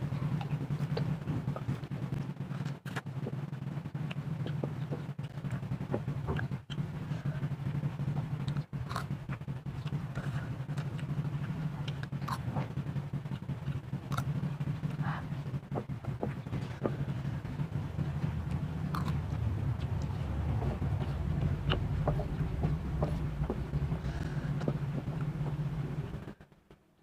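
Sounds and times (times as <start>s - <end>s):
steady low hum: 0.0s - 27.0s
person chewing noodles: 8.4s - 12.6s, 13.2s - 15.2s, 16.2s - 25.4s.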